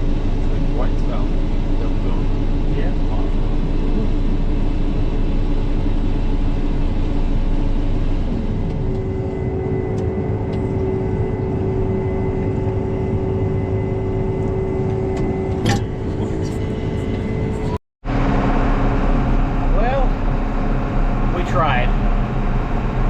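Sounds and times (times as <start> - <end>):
steady tone: 0.0 - 23.0
vehicle engine running: 0.0 - 23.0.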